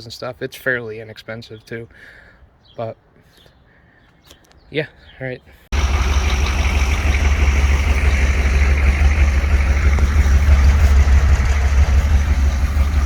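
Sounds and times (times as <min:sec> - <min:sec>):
diesel engine rumbling: 0:05.7 - 0:13.0.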